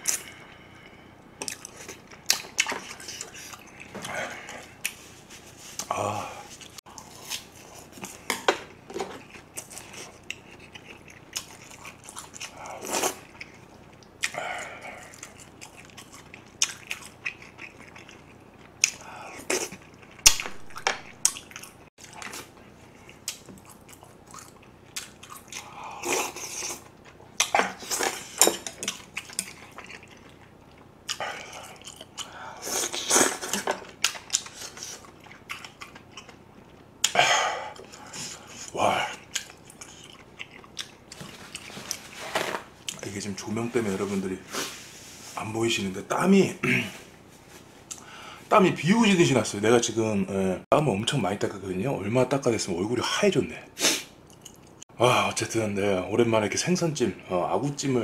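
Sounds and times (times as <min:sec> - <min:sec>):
person chewing food: 0:00.0 - 0:43.1, 0:47.8 - 0:48.2, 0:54.2 - 0:54.9.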